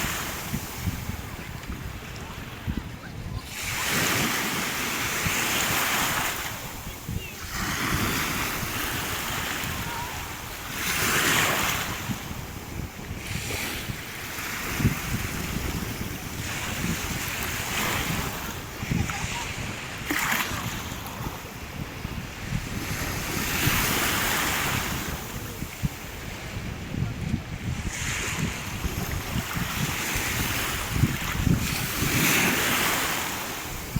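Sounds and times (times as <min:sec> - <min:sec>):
sea waves breaking on shore: 0:00.0 - 0:33.9
wind buffeting microphone: 0:00.0 - 0:33.9.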